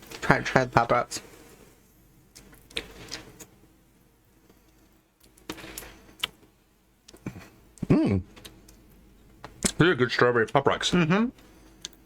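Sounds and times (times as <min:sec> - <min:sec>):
popping candy crackling: 0:07.1 - 0:09.9.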